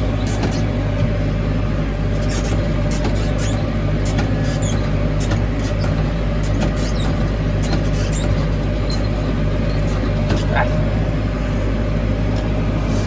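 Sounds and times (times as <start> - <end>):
tractor engine running: 0.0 - 13.0
high-pitched squeaks and rattles: 2.2 - 10.6.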